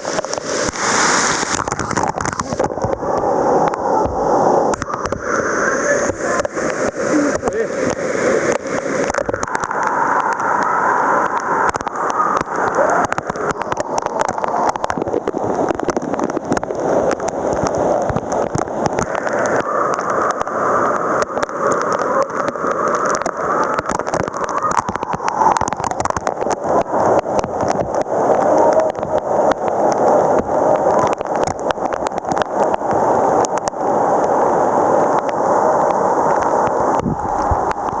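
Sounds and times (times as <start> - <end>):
short crackles: 0.0 - 29.6
waterfall splashing: 0.0 - 38.0.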